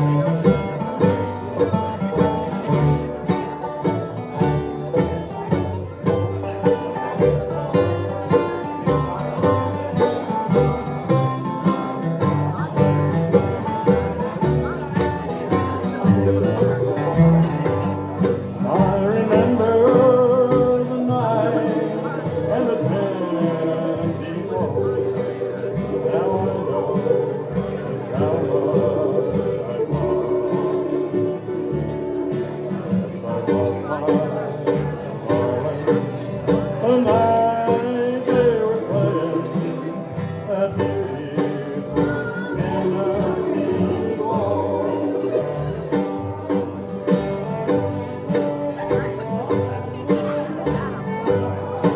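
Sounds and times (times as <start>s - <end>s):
bluegrass band playing: 0.0s - 51.9s.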